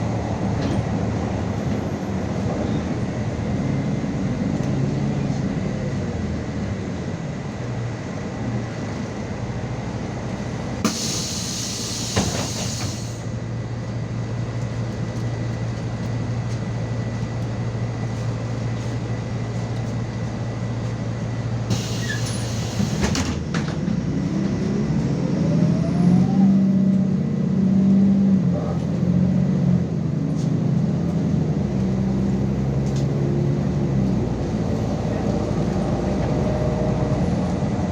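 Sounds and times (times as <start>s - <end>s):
bus engine running: 0.0s - 37.9s
compressed-air hiss: 10.9s - 13.2s.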